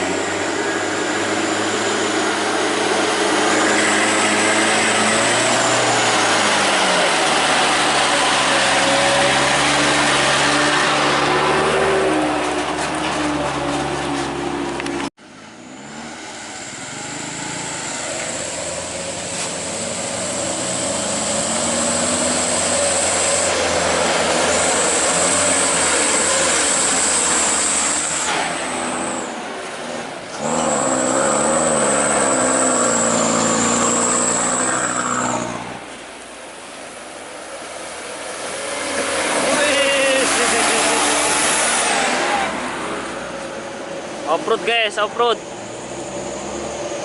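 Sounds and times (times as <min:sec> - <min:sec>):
diesel truck engine: 0:00.0 - 0:47.0.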